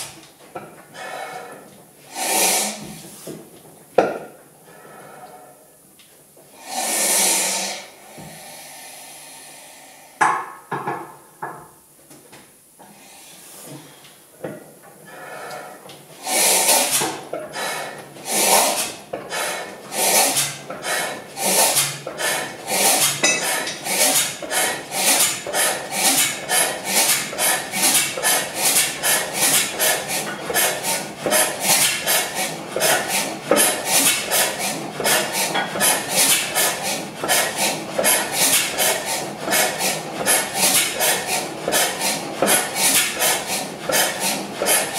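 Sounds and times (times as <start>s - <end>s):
metallic knocks: 23.2s - 23.8s.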